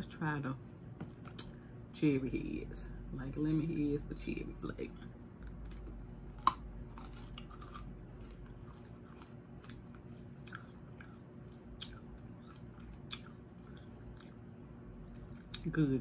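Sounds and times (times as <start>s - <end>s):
hard candy crunching: 5.0s - 14.4s.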